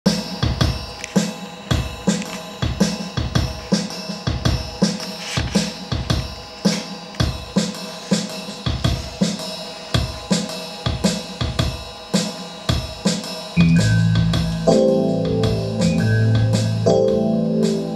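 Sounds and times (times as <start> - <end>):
drum kit playing groove: 0.0 - 17.9.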